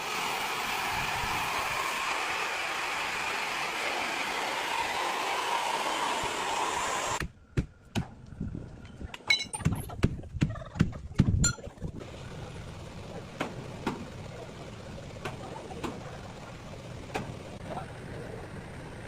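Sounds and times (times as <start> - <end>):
power tool running: 0.0 - 7.2.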